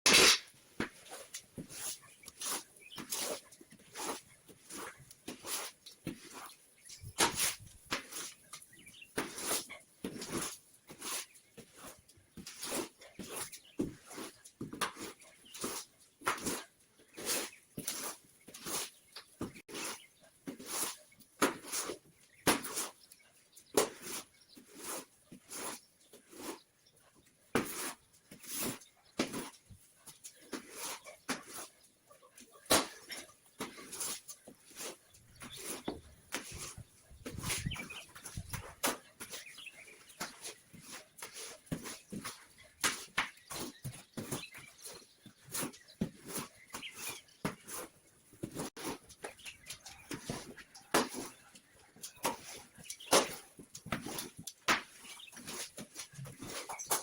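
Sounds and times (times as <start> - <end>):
birds calling: 6.1 - 10.4, 28.2 - 57.0.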